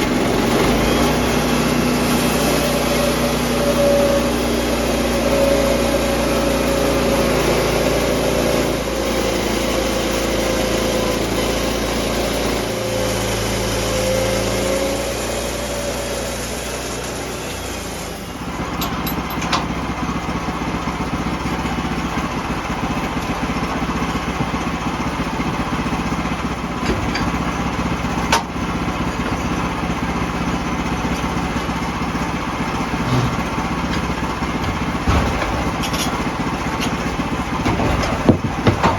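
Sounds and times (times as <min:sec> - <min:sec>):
wavering saw whine: 0:00.0 - 0:19.5
sawmill engine running: 0:00.0 - 0:38.9.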